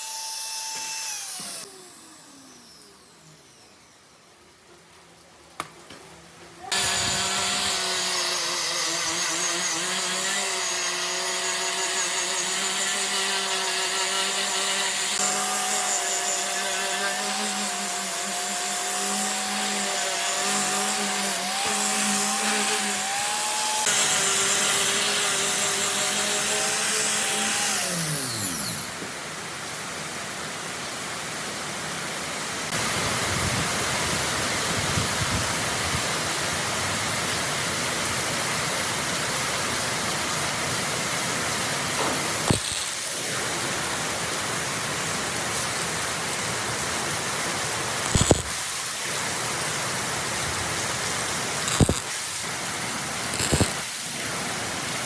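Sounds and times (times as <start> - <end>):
power tool motor whining: 0.0 - 3.8, 6.7 - 29.0, 42.3 - 43.2, 48.0 - 48.5, 51.7 - 52.2, 53.2 - 53.9.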